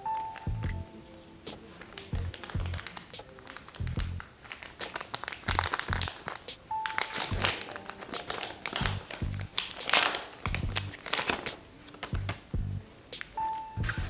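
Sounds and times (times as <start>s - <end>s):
background music with low beat: 0.0s - 14.0s
packaging crinkling: 1.5s - 12.5s.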